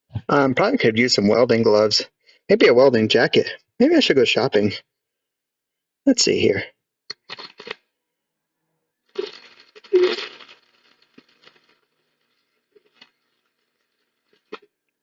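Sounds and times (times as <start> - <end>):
metal clinking and rattling: 9.1 - 14.7.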